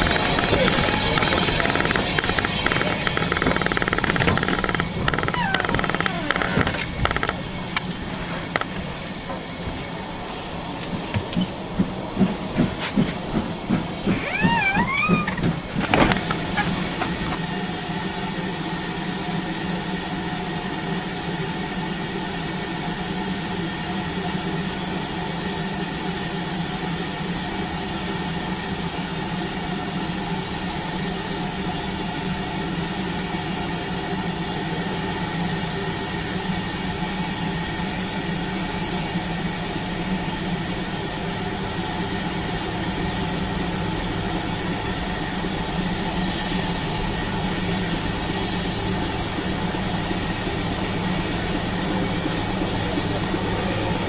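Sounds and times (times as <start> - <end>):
steam hissing: 0.0 - 11.1, 44.3 - 54.0
steam locomotive rhythmic beats: 47.9 - 54.0.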